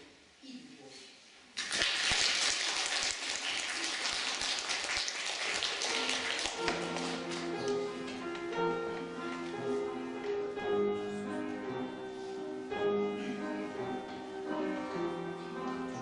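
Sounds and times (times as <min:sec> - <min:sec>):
instrumental accompaniment music: 0:05.6 - 0:16.0.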